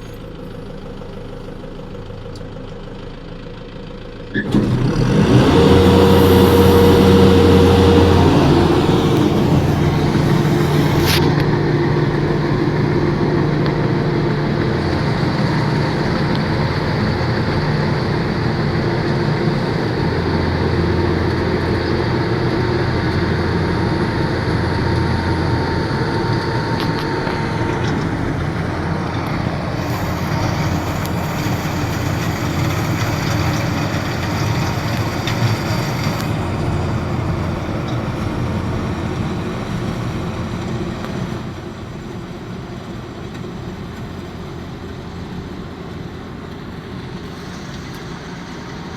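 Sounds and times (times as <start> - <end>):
machine engine humming: 0.0 - 48.9
thin high whine: 5.4 - 36.3.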